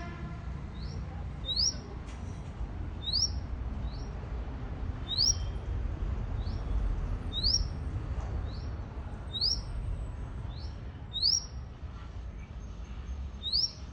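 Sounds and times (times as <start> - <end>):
steady low rumble: 0.0 - 13.9
bird chirping upward sweeps: 3.0 - 4.1, 5.1 - 5.6, 7.3 - 7.7, 9.4 - 9.6, 11.2 - 11.5, 13.4 - 13.9.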